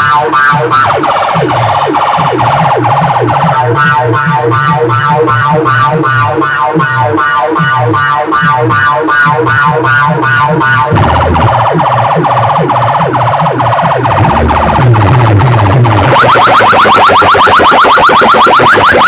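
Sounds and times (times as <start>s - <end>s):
bouncing bass line: 0.0s - 19.0s
pulsing siren-like electronic tone: 0.0s - 19.0s
buzzing with falling sweeps: 10.9s - 16.8s.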